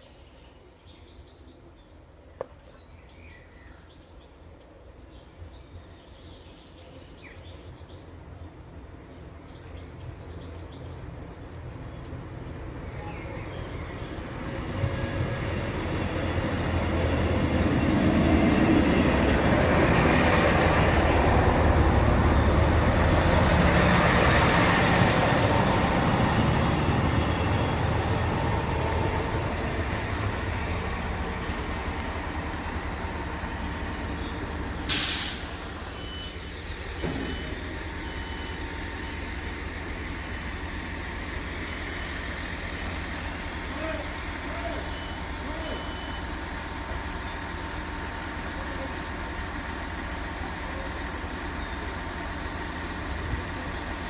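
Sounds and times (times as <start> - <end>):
train rumble passing: 7.4 - 54.0
short sharp hiss: 34.8 - 36.0.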